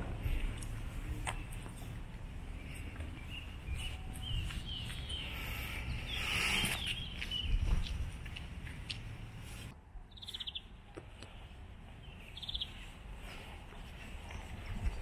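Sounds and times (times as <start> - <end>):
small songbird chirping: 0.4 - 9.1, 10.1 - 13.0.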